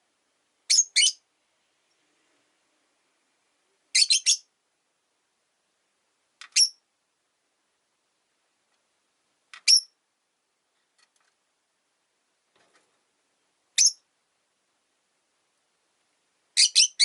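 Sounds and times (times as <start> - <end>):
lovebirds chirping: 0.7 - 1.2, 3.9 - 4.5, 6.4 - 6.8, 9.6 - 10.0, 13.7 - 14.1, 16.6 - 17.0.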